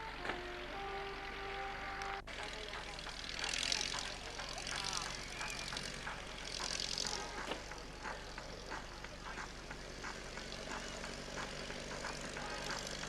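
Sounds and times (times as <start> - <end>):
propeller aircraft engine drone: 0.0 - 13.0.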